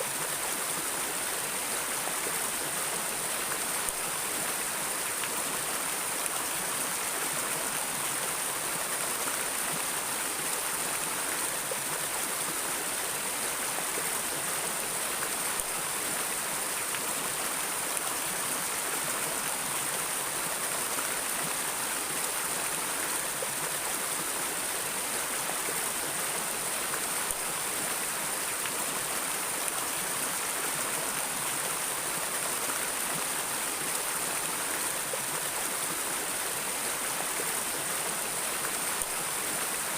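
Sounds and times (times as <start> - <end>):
stream of flowing water: 0.0 - 39.9.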